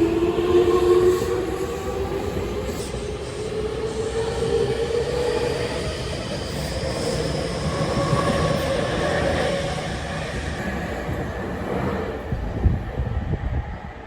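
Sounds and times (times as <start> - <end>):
train rail running noise: 0.0 - 14.0.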